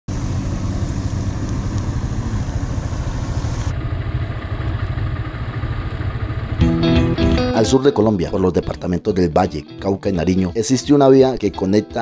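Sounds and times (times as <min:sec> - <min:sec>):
motorcycle engine rumbling: 0:00.1 - 0:08.7.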